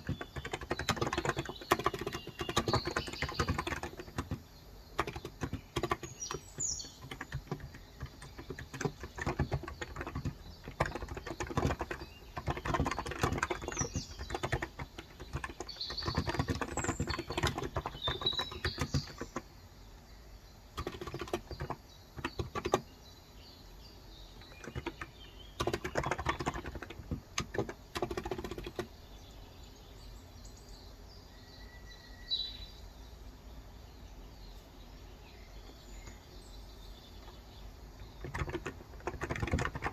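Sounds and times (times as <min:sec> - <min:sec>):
keyboard typing: 0:00.0 - 0:19.5, 0:20.8 - 0:22.9, 0:24.4 - 0:28.9, 0:38.0 - 0:39.9
birds chirping: 0:00.0 - 0:39.9.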